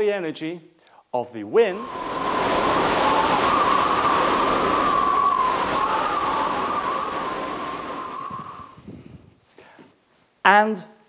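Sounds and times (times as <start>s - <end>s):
howling wind: 1.7s - 9.4s.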